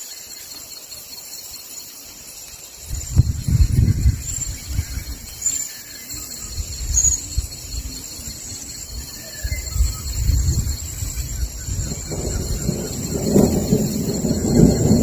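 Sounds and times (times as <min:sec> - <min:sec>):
insects buzzing: 0:00.0 - 0:15.0
bird chirps: 0:03.0 - 0:15.0
distant thunder rumbling: 0:06.4 - 0:15.0.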